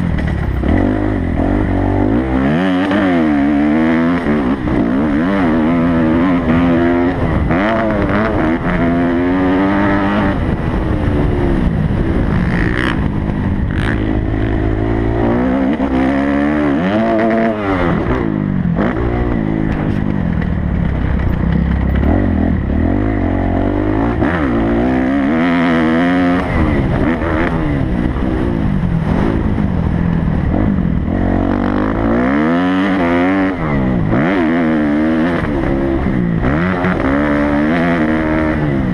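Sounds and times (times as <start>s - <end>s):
motocross bike engine revving: 0.0s - 38.9s
wind on microphone: 0.0s - 38.9s.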